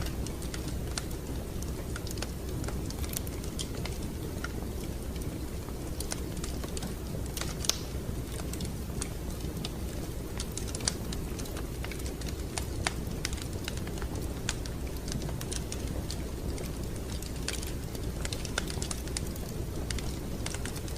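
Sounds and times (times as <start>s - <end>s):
wood fire crackling: 0.0s - 20.9s.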